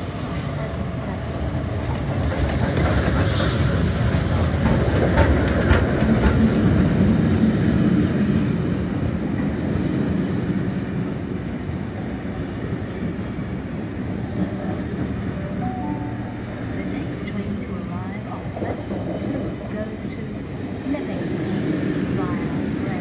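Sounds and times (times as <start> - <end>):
train rumbling past: 0.0 - 23.0
train wheels clacking over rail joints: 1.7 - 7.2.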